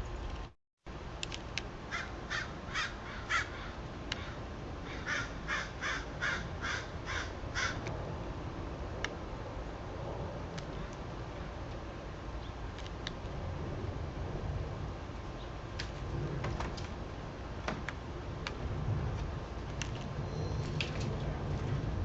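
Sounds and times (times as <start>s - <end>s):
crow cawing: 1.9s - 7.8s.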